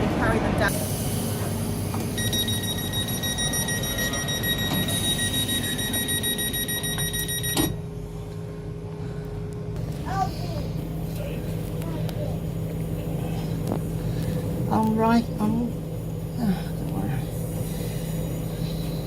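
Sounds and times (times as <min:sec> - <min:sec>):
diesel engines rumbling: 0:00.0 - 0:07.0, 0:07.7 - 0:19.0
high electronic warning tone: 0:02.1 - 0:07.8.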